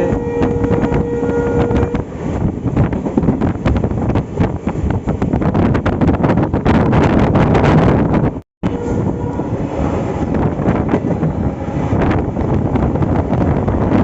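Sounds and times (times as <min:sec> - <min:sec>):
locomotive horn: 0:00.0 - 0:02.0, 0:08.6 - 0:10.3.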